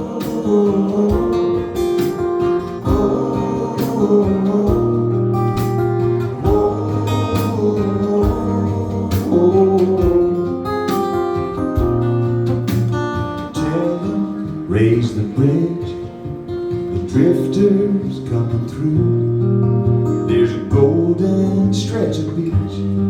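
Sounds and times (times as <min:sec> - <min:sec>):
steady beat: 0:00.0 - 0:14.7
bass line: 0:00.0 - 0:15.7
acoustic guitar strumming: 0:00.0 - 0:23.0.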